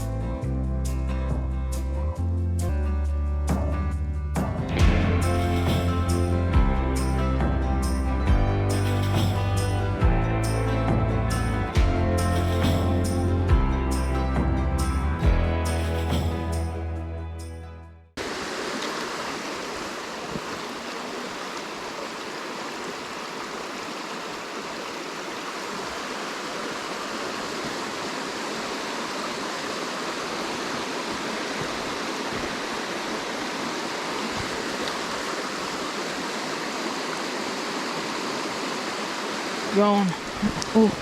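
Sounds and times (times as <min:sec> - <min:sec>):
water running over rocks: 0:18.2 - 0:41.0.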